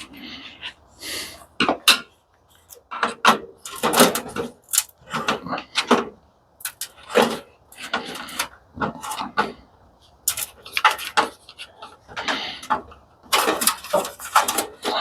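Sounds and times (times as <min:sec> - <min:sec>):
metal parts and tools clattering: 0:02.6 - 0:09.6, 0:10.2 - 0:15.0.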